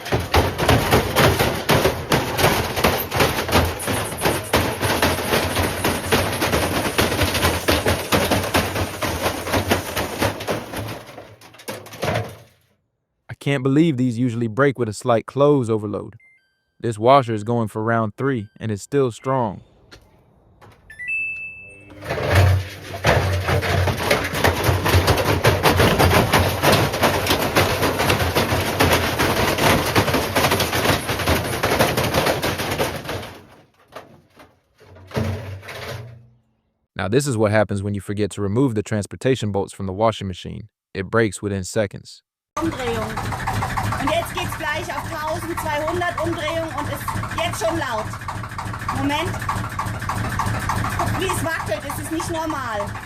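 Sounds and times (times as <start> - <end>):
bricks banging in washing machine: 0.0 - 12.6, 21.9 - 36.4, 42.6 - 53.0.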